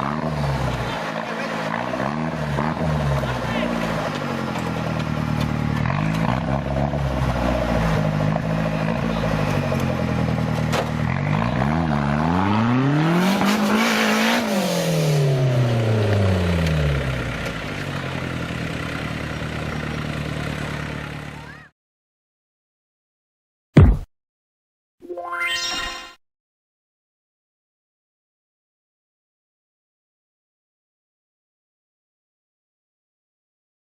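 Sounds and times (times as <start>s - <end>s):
vehicle engine revving: 0.0s - 21.4s.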